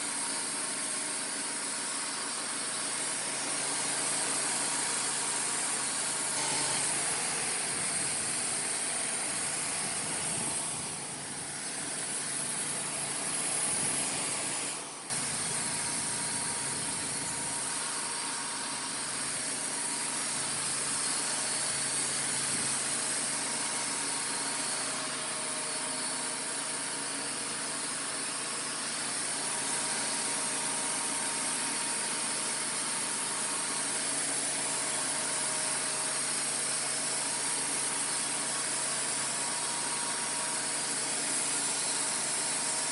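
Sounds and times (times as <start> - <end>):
sawmill running: 0.0 - 42.9.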